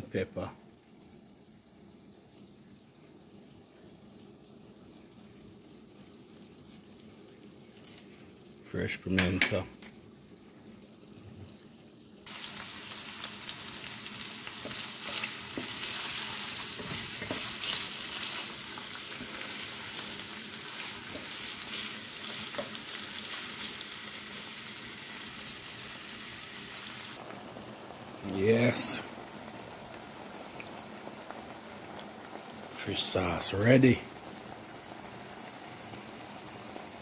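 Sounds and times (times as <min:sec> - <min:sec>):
vegetables sizzling in oil: 0:01.4 - 0:37.0
wooden spatula stirring: 0:14.5 - 0:23.7.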